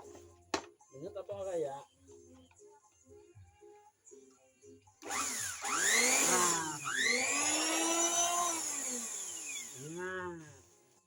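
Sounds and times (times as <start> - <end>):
electric wood planer whining: 5.0 - 10.4.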